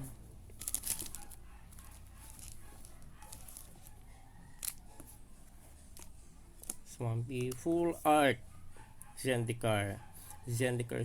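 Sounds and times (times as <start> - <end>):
cards rustling and clicking: 0.4 - 8.0.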